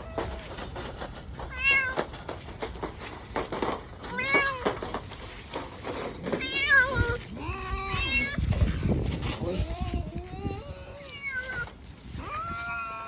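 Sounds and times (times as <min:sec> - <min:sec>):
knocks and rattles: 0:00.0 - 0:07.2
cat meowing: 0:06.4 - 0:08.8, 0:09.6 - 0:13.0.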